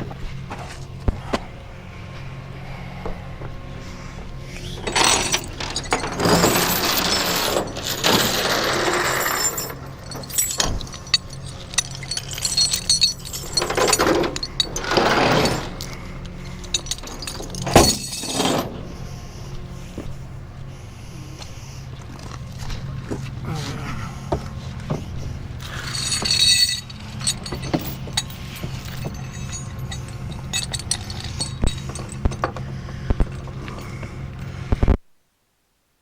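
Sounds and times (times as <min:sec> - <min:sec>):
steady low hum: 0:00.0 - 0:35.0
metal chains rattling and clanking: 0:04.8 - 0:19.0, 0:25.6 - 0:32.6.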